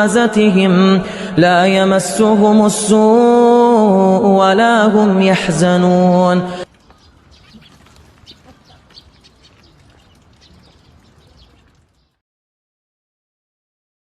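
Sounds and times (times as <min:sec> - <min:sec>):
faint bird chirping: 0:06.7 - 0:12.2.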